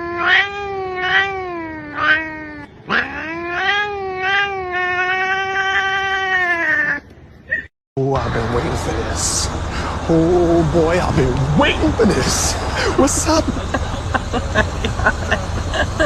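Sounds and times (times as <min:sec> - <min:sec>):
cat yowling: 0:00.0 - 0:07.7.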